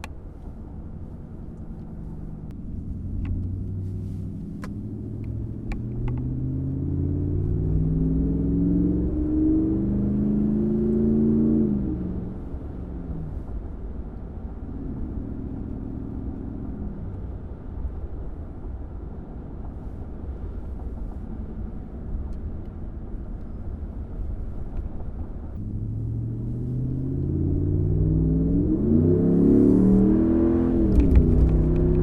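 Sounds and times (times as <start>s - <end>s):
truck exhaust rumbling: 0.0s - 32.0s
engine revving up: 3.5s - 12.3s, 25.6s - 32.0s.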